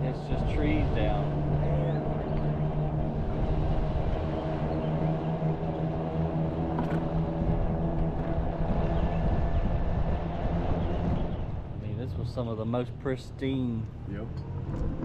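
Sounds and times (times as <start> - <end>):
road noise: 0.0 - 15.0
vehicle engine droning: 0.0 - 15.0.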